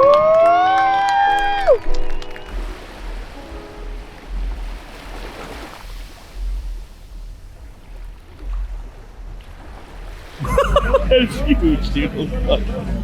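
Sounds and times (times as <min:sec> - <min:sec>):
outdoor noise: 0:00.0 - 0:13.0.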